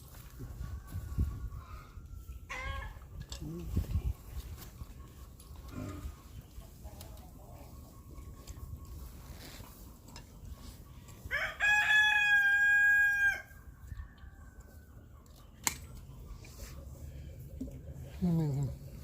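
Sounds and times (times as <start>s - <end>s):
rooster crowing: 11.3s - 13.5s.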